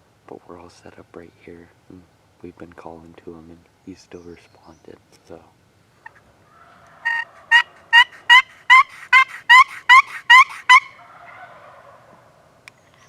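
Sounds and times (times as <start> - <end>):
turkey call yelps: 6.0 - 12.4.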